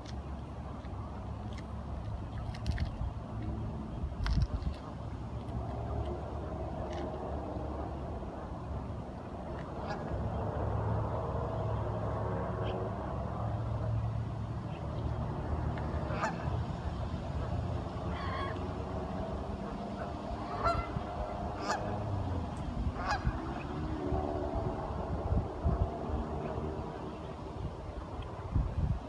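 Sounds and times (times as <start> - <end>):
steady low rumble: 0.0 - 29.0
ducks honking: 16.0 - 16.6, 18.0 - 18.8, 20.0 - 22.1, 23.0 - 23.6.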